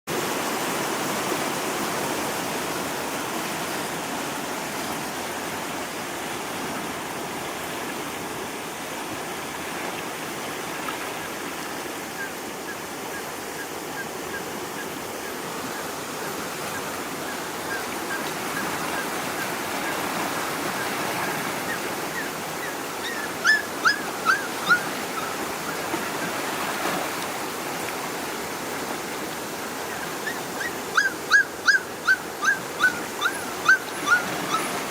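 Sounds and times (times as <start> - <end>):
rushing floodwater: 0.1 - 34.9
puppies crying: 21.2 - 25.9, 30.2 - 34.9.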